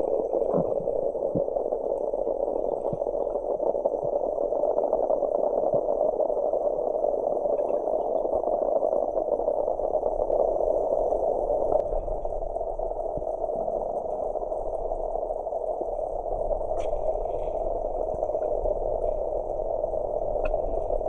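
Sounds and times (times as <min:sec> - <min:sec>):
crackling underwater drone: 0:00.0 - 0:21.0.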